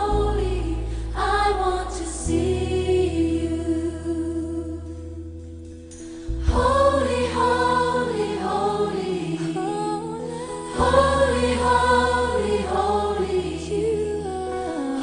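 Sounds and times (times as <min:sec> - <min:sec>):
choir singing long notes: 0:00.0 - 0:04.1, 0:06.4 - 0:15.0
steady low bass: 0:00.0 - 0:09.7.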